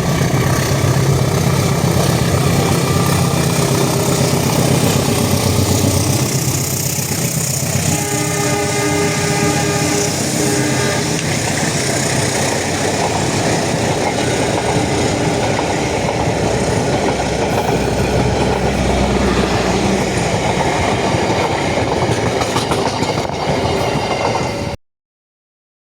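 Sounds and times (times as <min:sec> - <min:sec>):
train rumbling: 0:00.0 - 0:24.8
train horn chord: 0:07.8 - 0:11.4.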